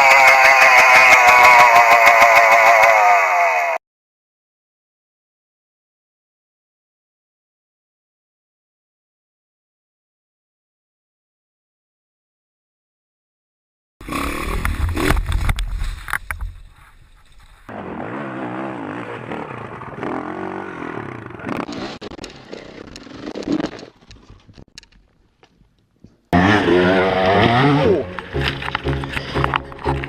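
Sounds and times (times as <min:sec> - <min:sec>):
dirt bike engines revving: 0:17.7 - 0:22.8, 0:26.4 - 0:30.0.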